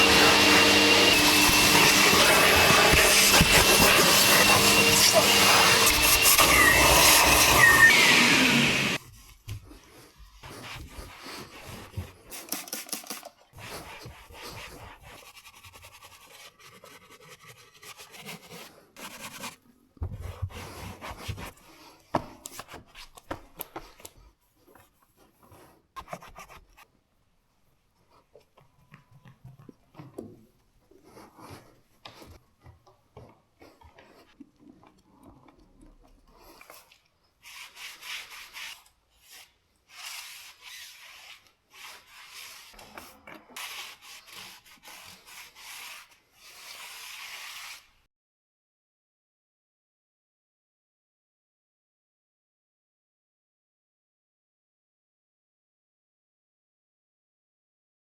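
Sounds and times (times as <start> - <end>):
scratchy rubbing and scraping: 0.0 - 21.9, 37.4 - 48.0.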